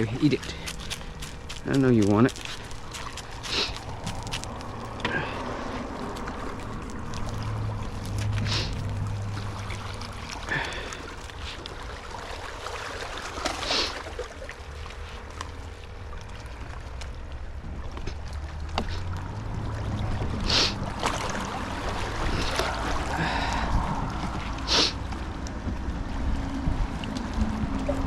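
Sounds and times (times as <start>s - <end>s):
steady low rumble: 0.0s - 12.8s, 14.4s - 28.0s
hissy splashes: 0.0s - 15.3s, 19.8s - 23.9s, 24.5s - 25.0s
water at seashore: 0.0s - 28.0s
wind: 0.0s - 28.0s.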